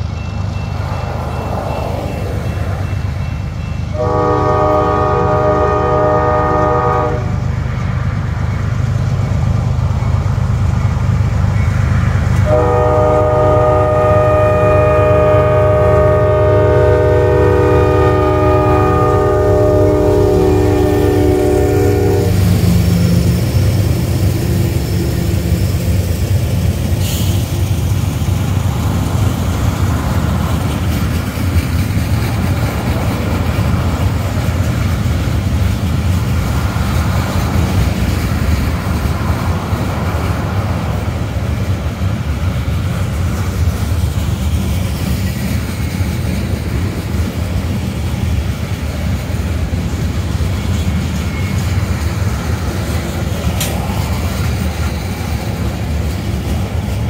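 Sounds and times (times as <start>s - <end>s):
low rumble of engines and wheels: 0.0s - 57.0s
train air horn blasts: 3.9s - 7.4s, 12.4s - 23.2s, 27.0s - 27.5s
wheels clacking over rail joints: 18.0s - 57.0s.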